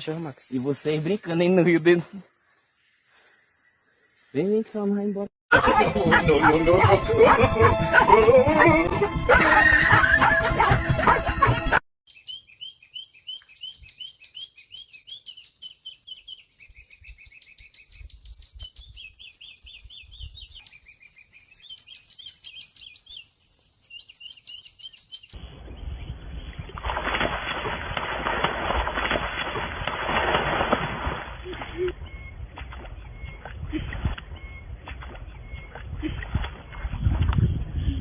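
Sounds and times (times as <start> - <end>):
bird chirping: 0.0 - 5.3, 12.1 - 26.8, 31.7 - 37.6.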